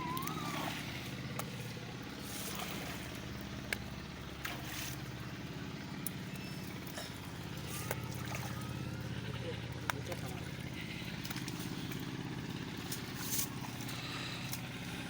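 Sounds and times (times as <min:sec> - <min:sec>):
small boat engine running: 0:00.0 - 0:15.0.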